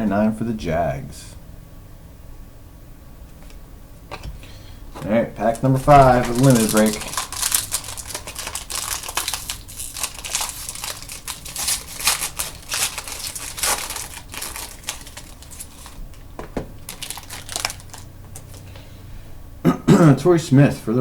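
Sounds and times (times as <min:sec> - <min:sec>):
card pack wrapper tearing and crinkling: 0:05.5 - 0:18.7.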